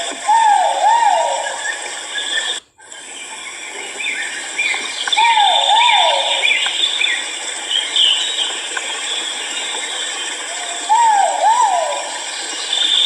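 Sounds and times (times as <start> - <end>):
pheasant hooting calls: 0.0 - 2.6, 4.6 - 7.2, 10.5 - 13.0
high insect-like drone: 0.0 - 13.0.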